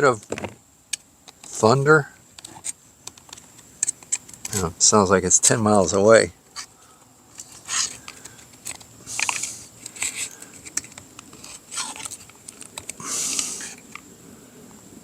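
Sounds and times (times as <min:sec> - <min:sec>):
handling small engine parts: 0:06.4 - 0:14.0
short hiss-like bursts: 0:13.0 - 0:13.9.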